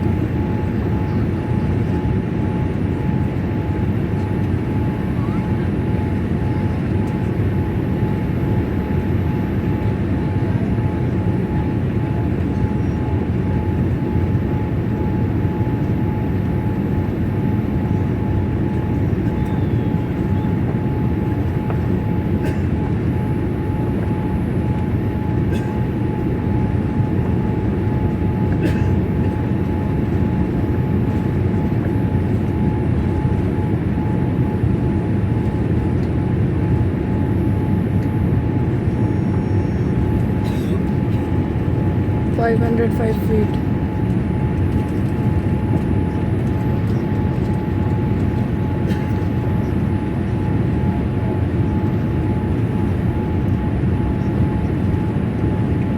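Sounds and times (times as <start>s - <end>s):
airplane cabin engine noise: 0.0s - 55.9s
thin steady whine: 29.5s - 48.8s.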